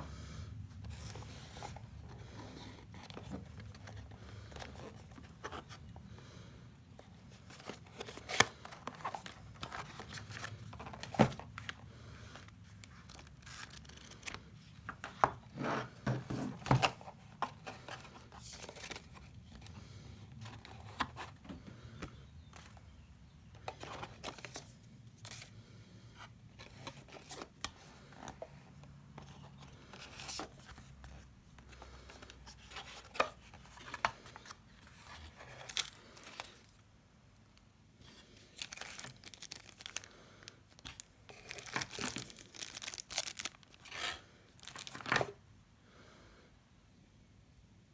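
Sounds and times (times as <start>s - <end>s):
cardboard and plastic tearing: 40.8s - 45.4s.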